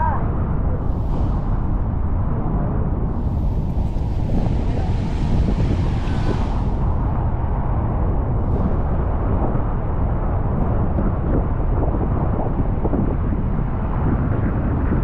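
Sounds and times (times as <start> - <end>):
waterfall roaring: 3.3 - 7.2.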